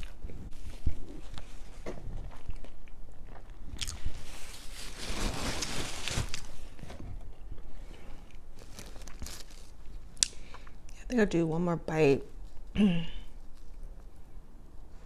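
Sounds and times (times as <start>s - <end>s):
chewing and biting food: 0.0s - 4.4s
rustling noise: 4.0s - 7.4s.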